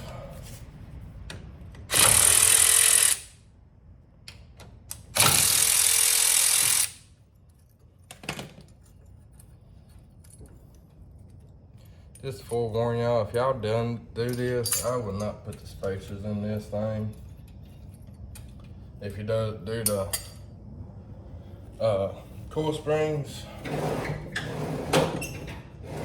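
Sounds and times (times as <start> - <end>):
impact wrench: 1.9 - 3.4, 5.0 - 7.0.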